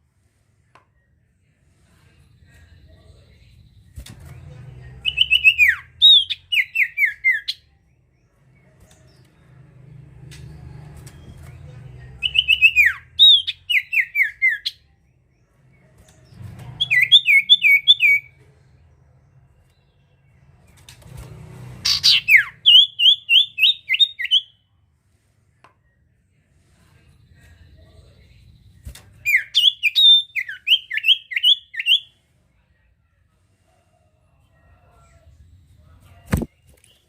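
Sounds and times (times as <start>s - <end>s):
faint low hum: 0.0s - 22.7s, 24.4s - 37.0s
bird whistling song: 5.0s - 7.6s, 12.2s - 14.8s, 16.8s - 18.3s, 21.9s - 24.6s, 29.2s - 32.1s.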